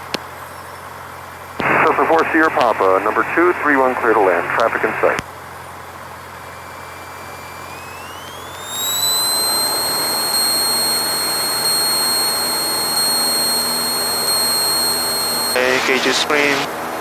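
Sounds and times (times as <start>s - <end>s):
airplane engine running up: 6.6s - 17.0s.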